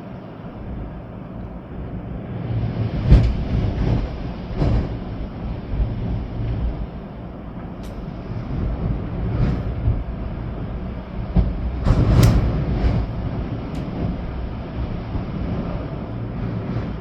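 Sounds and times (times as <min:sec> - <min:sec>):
rain: 0:00.0 - 0:17.0
storm wind gusting: 0:00.4 - 0:17.0
short sharp hits: 0:12.2 - 0:12.8.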